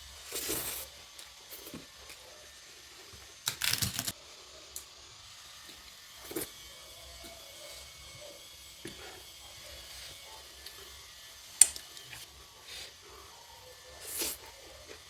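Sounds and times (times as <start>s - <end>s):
crisp crackles: 3.4s - 4.1s.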